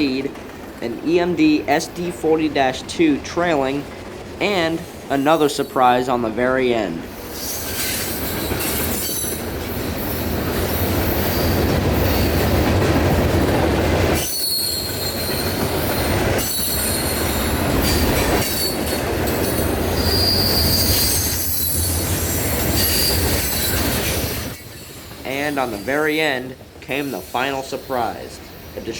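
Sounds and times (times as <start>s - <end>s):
freight train cars rumbling: 0.0s - 28.9s
rail clatter: 0.0s - 28.9s
train wheels squealing: 7.2s - 12.5s, 14.2s - 28.9s.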